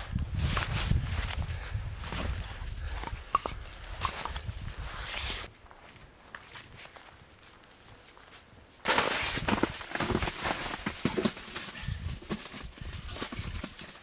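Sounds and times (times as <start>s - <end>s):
footsteps crunching in snow: 3.8s - 13.4s.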